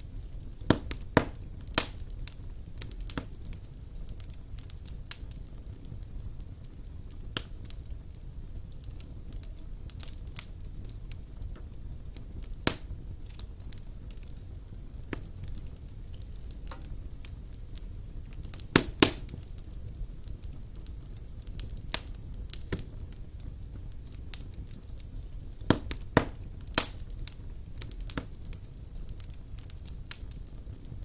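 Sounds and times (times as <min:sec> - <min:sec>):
fire crackling: 0:00.0 - 0:31.0
low rumble of fire: 0:00.0 - 0:31.0.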